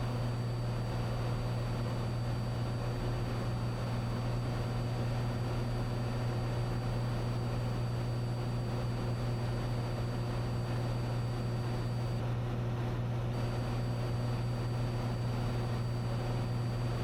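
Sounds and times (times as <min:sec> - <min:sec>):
faint high whine: 0:00.0 - 0:17.0
propeller plane engine droning: 0:00.0 - 0:17.0.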